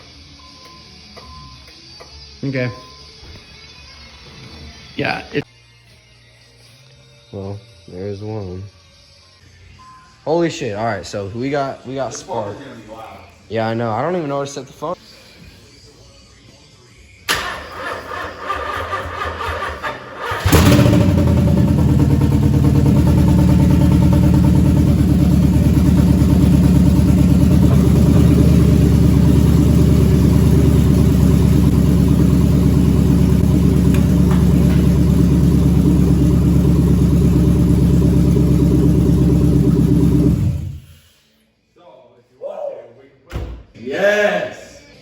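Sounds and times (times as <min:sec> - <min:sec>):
engine starter cranking: 0:17.3 - 0:29.0
car engine running loud: 0:20.4 - 0:40.8.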